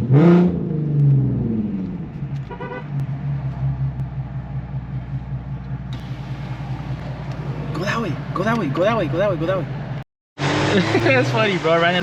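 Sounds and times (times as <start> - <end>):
car engine idling after a rev: 3.8 - 8.1.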